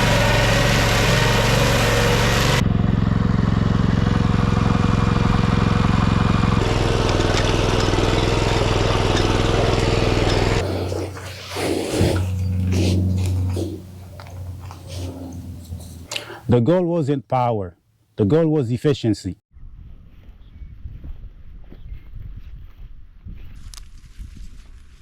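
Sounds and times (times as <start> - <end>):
small tractor engine running: 0.0 - 16.1.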